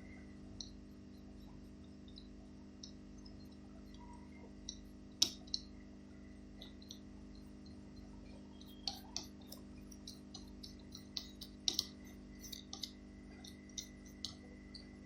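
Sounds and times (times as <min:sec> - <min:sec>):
steady low hum: 0:00.0 - 0:15.0
solder balls clicking on stencil: 0:04.6 - 0:05.8, 0:06.6 - 0:15.0.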